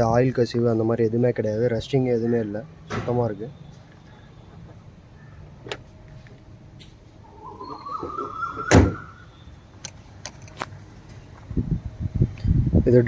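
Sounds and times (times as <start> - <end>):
squeak rising in pitch: 7.2 - 9.5.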